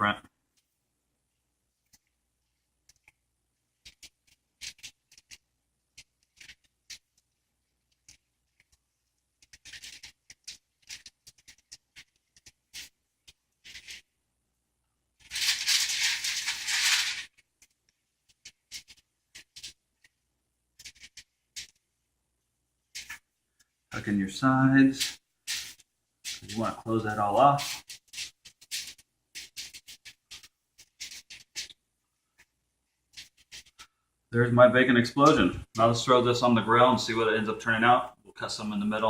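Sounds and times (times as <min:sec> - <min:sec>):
raw bacon rustling and clicking: 0:03.8 - 0:14.1, 0:15.2 - 0:21.9, 0:24.9 - 0:34.0.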